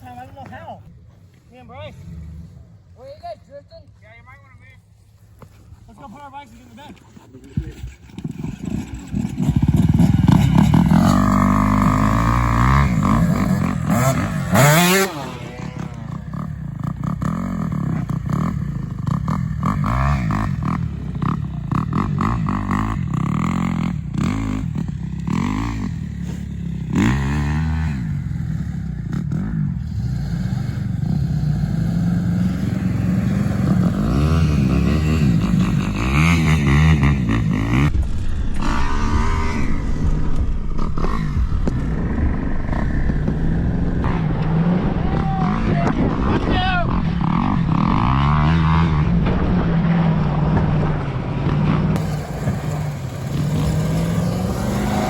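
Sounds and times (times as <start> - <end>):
vehicle engine revving: 7.9 - 55.0
rattling noise: 49.1 - 55.0.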